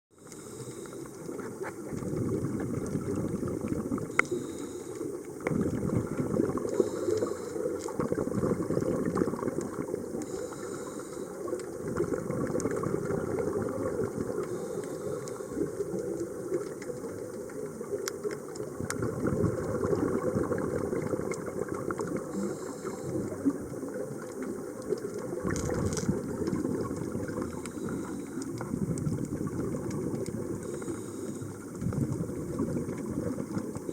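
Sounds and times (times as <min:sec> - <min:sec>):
underwater exhaled air bubbling: 0:00.1 - 0:33.9.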